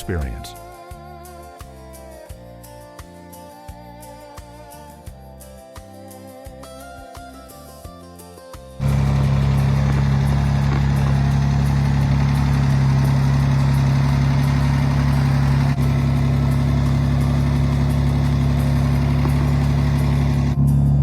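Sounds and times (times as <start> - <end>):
car engine idling: 8.8 - 20.8.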